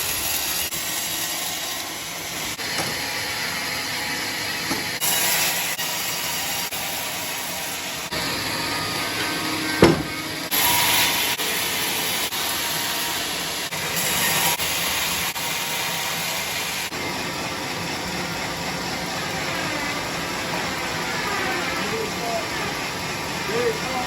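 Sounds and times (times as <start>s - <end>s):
sawmill saw cutting log: 0.0s - 24.0s
sharp knock: 9.8s - 10.2s.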